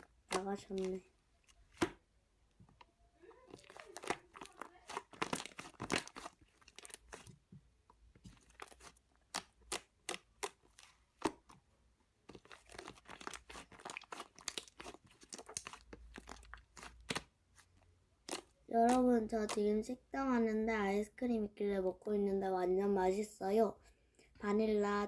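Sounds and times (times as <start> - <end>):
slime squeezed with sticky pops: 3.4 - 7.5, 8.2 - 11.5, 12.3 - 17.4.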